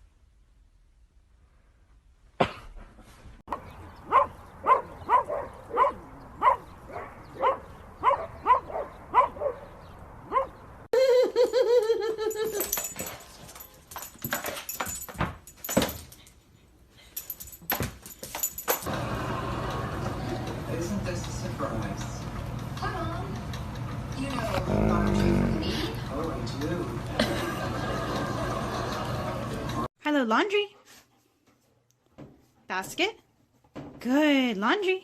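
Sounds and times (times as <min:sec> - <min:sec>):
dog barking: 0:04.0 - 0:10.6.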